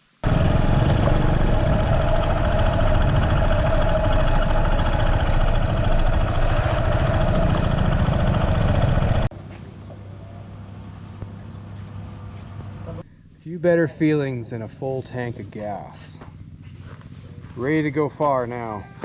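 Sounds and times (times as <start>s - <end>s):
motorcycle engine running: 0.2s - 9.3s, 15.6s - 19.0s.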